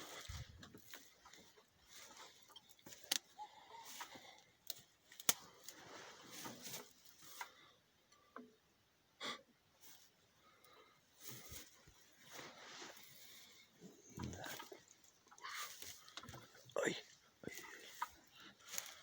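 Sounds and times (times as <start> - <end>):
soft rustling: 5.0 - 7.7, 11.2 - 16.7.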